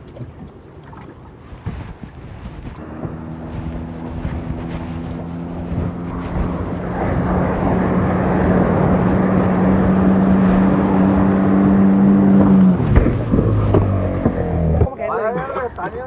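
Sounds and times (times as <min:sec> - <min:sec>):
water rushing past: 0:00.0 - 0:14.9
boat engine running: 0:00.0 - 0:16.0
wind rushing: 0:02.3 - 0:14.8.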